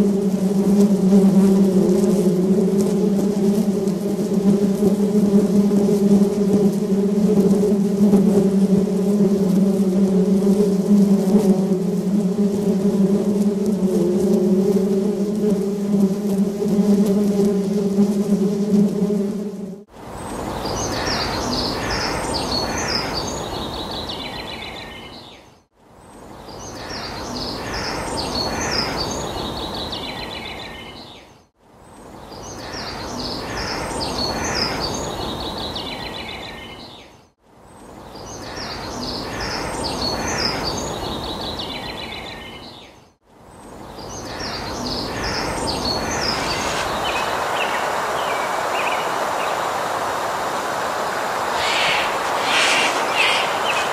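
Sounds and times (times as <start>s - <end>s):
steady background noise: 43.3s - 53.9s
songbird chirping: 51.1s - 53.9s.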